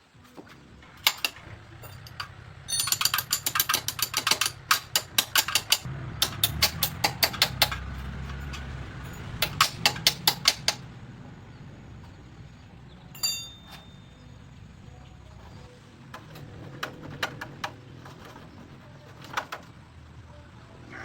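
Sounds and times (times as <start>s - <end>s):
ratchet wrench clicking: 1.0s - 10.8s.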